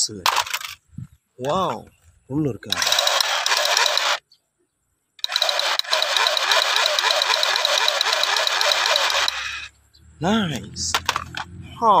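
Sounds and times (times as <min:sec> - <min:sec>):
toy gun buzzing rattle: 0:02.7 - 0:04.2, 0:05.2 - 0:09.7.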